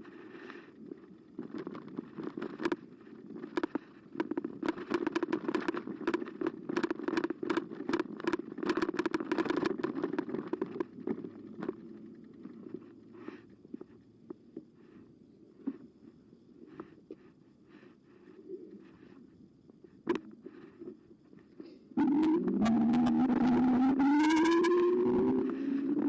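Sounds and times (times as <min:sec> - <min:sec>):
bike rattles and clicks: 0:00.0 - 0:14.5.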